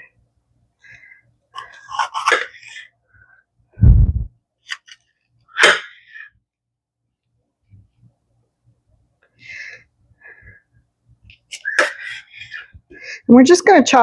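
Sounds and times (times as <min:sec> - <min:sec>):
brief rushing sound: 0:03.8 - 0:04.3
heavy low thump: 0:03.8 - 0:04.3.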